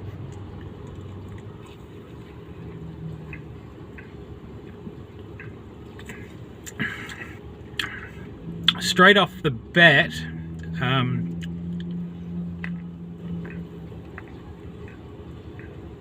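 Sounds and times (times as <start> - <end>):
low background rumble: 0.0 - 16.0
wet mouth clicks: 5.4 - 8.0, 12.6 - 15.9.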